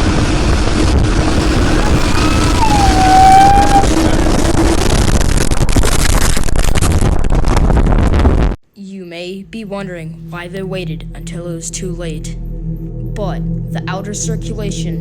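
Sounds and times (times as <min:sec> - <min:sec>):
wind and rain buffeting microphone: 0:00.0 - 0:08.6
high wail sliding down: 0:01.6 - 0:05.0.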